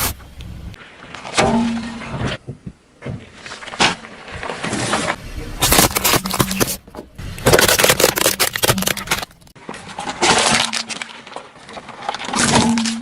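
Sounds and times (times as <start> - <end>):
crunchy objects being crushed: 3.2 - 13.0.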